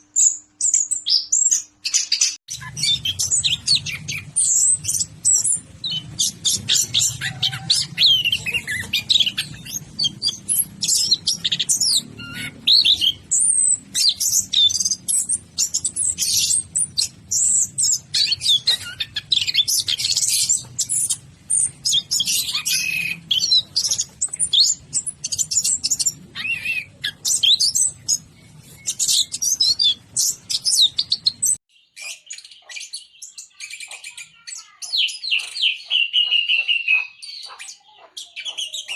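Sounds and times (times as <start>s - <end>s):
low hum: 2.5s - 31.6s
thrush singing: 2.5s - 31.6s.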